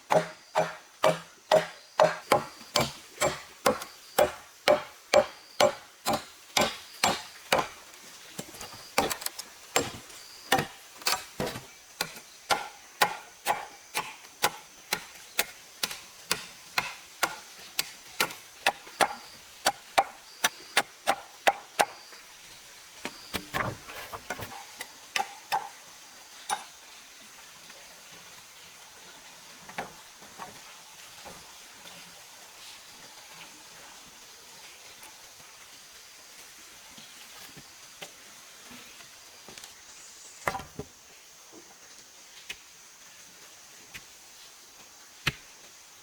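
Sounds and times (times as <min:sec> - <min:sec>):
chopping on wood: 0:00.1 - 0:07.8, 0:09.0 - 0:20.1, 0:23.3 - 0:24.6.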